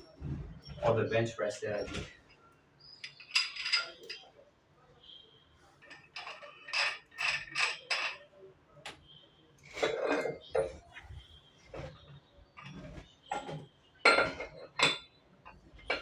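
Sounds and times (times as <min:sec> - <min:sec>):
metal gym weights clanking: 0:05.8 - 0:08.3.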